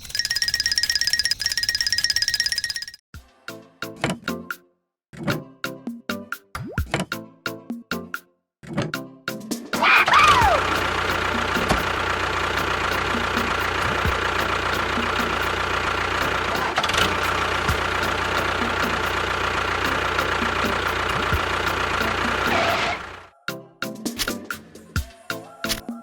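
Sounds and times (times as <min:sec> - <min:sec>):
engine starting and running: 0:00.0 - 0:03.0, 0:09.9 - 0:23.3.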